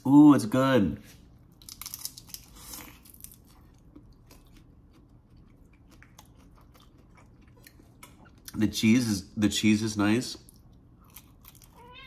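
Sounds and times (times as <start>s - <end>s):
person chewing crunchy food: 1.3s - 8.6s, 10.5s - 11.9s.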